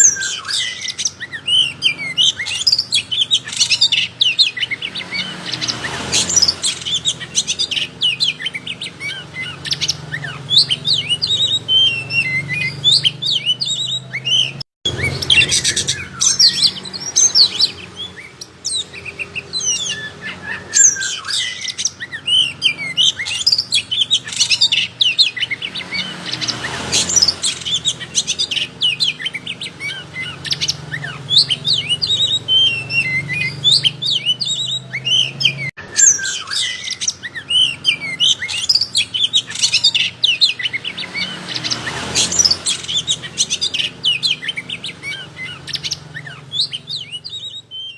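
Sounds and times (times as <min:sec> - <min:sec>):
songbird chirps and whistles: 0:00.0 - 0:47.9.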